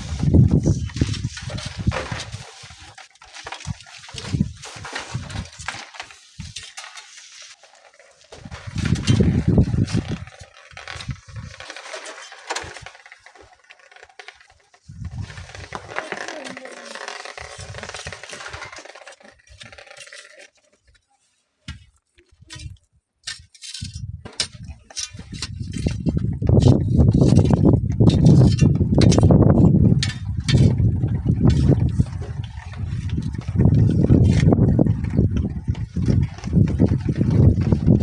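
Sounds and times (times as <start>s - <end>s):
wind buffeting microphone: 0.0s - 2.4s, 8.4s - 10.3s, 14.9s - 16.0s, 23.8s - 38.0s.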